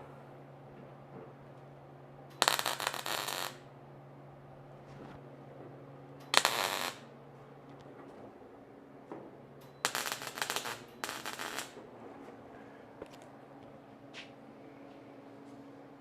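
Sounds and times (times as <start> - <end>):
steady low hum: 0.0 - 16.0
welding crackle: 2.4 - 3.7, 6.3 - 7.1, 9.8 - 11.8.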